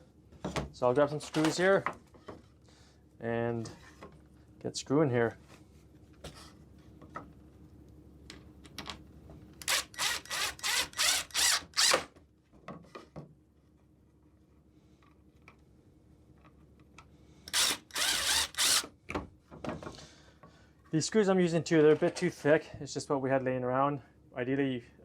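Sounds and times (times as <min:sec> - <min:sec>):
power drill driving screws: 0:09.6 - 0:12.1, 0:17.5 - 0:18.9.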